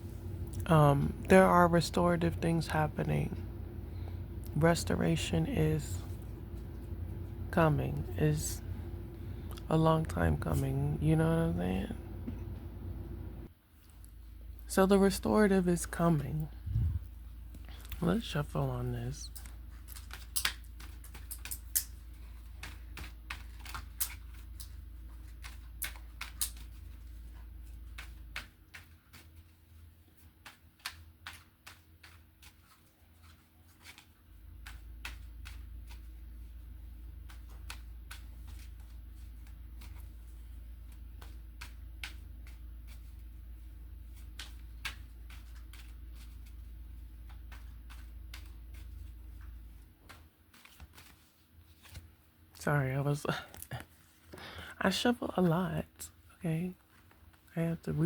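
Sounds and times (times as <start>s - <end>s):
space heater humming: 0.0s - 28.6s
cards being shuffled: 19.3s - 52.4s.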